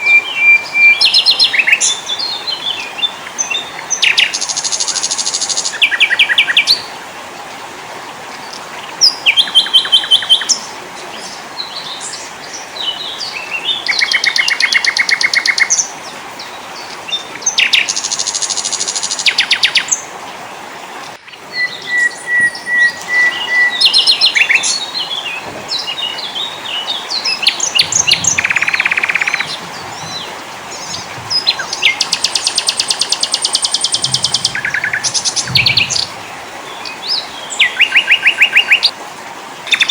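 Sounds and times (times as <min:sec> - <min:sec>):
whistled bird notes: 0:00.0 - 0:06.6, 0:21.2 - 0:38.9
bird chirps: 0:00.0 - 0:06.7, 0:21.2 - 0:38.9
songbirds trilling: 0:00.0 - 0:07.0, 0:08.1 - 0:39.0.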